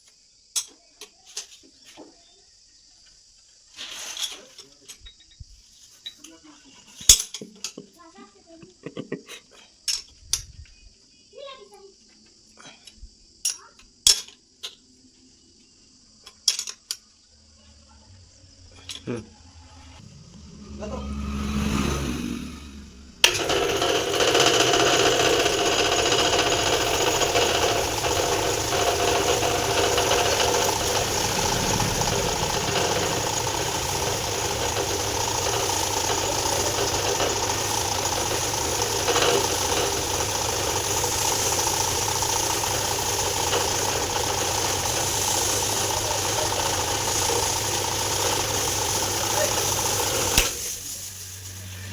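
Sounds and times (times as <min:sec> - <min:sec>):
pressure washer pump running: 0:23.2 - 0:51.9.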